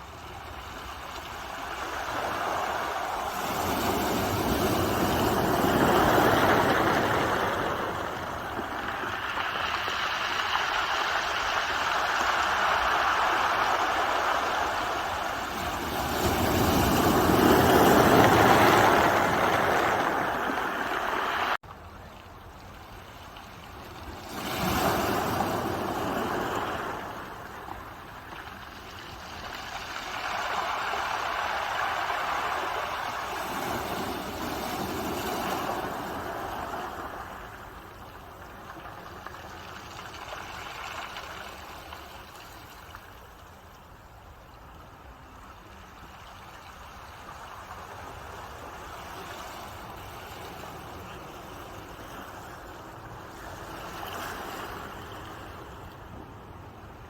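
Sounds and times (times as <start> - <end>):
ocean waves washing in: 0.0 - 21.6, 23.0 - 57.0.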